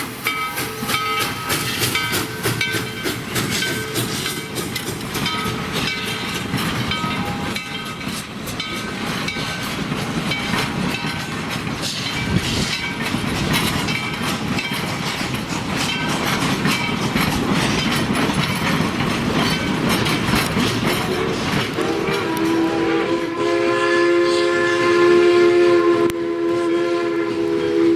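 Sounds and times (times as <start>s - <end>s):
steam locomotive whistle: 0.0s - 2.6s, 21.1s - 27.9s
wheels clicking over rail joints: 0.0s - 22.8s
railroad cars rumbling: 0.0s - 27.9s.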